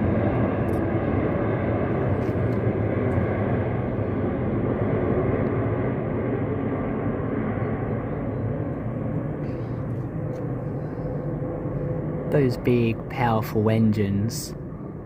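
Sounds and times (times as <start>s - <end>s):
jet airliner passing overhead: 0.0s - 15.0s.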